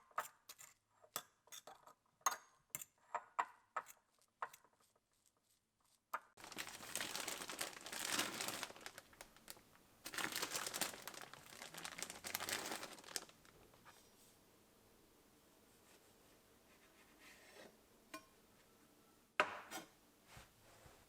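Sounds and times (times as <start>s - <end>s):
packaging crinkling and rustling: 6.4s - 13.8s.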